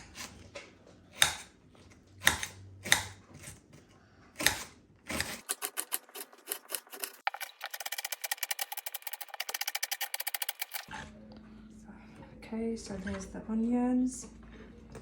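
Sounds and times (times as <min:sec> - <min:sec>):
knife chopping on cutting board: 0:01.2 - 0:01.5, 0:02.2 - 0:03.6.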